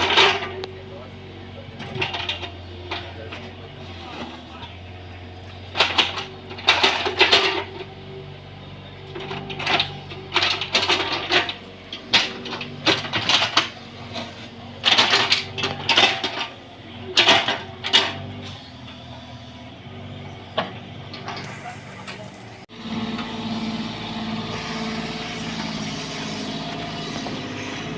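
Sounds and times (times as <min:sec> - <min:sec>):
diesel engine running: 0:00.0 - 0:27.9
metallic clanks and scrapes: 0:09.1 - 0:19.6.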